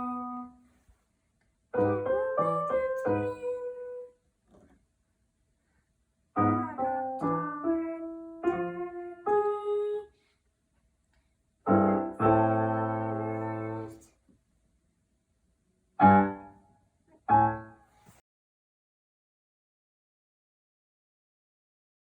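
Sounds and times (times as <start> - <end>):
piano playing: 0.0 - 0.6, 1.8 - 4.1, 6.4 - 10.0, 11.7 - 14.0, 16.0 - 16.6, 17.2 - 17.8.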